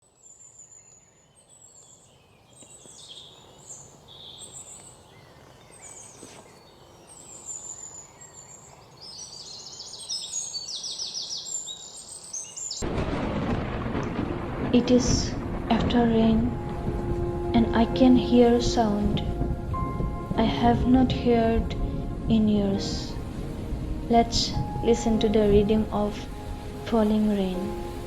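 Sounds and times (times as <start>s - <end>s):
birds chirping and trilling: 0.0s - 14.0s.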